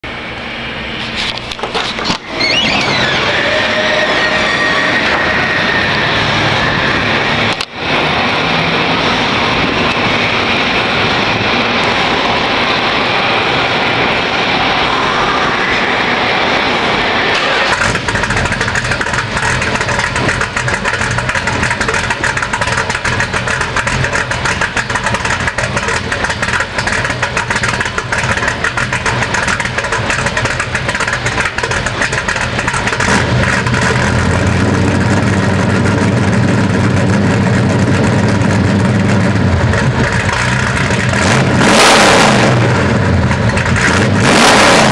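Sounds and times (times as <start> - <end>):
car engine cranking: 1.0 - 6.7, 17.3 - 44.9.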